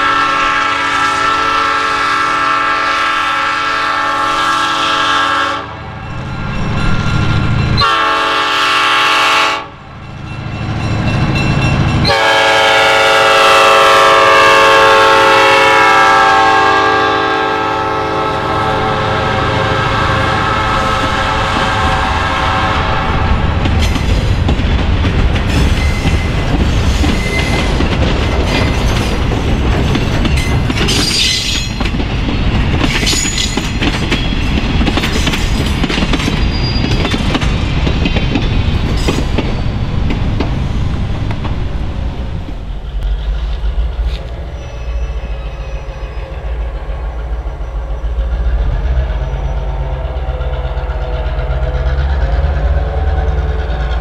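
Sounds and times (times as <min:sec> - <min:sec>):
train wheel squeals: 0:05.9 - 0:08.0, 0:25.5 - 0:40.4, 0:42.7 - 0:54.0
train wheels clattering: 0:23.0 - 0:41.6, 0:42.4 - 0:54.0
low engine drone: 0:41.9 - 0:54.0.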